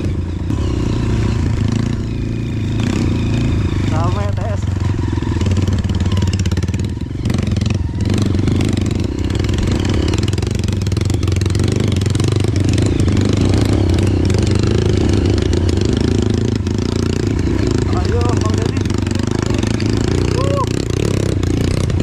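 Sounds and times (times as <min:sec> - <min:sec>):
dirt bike engine running: 0:00.0 - 0:22.0.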